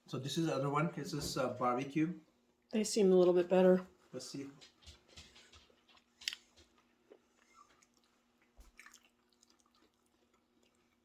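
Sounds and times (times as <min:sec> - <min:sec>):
person chewing chicken wing: 0:05.7 - 0:11.0.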